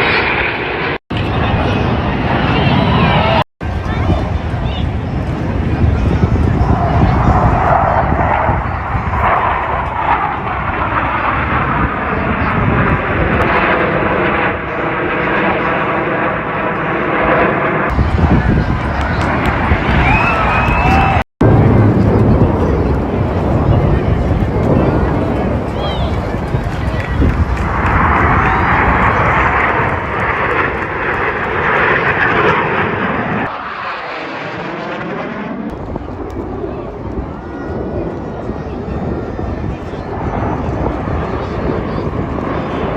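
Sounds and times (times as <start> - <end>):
jet engine noise: 0.0 - 42.9.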